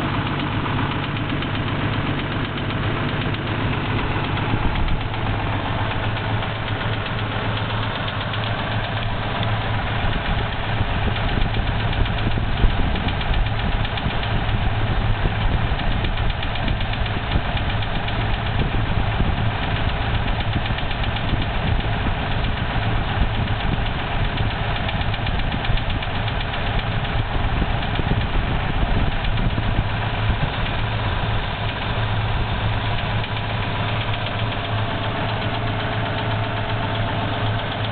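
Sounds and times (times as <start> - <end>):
engine idling with rapid knock: 0.0 - 37.9.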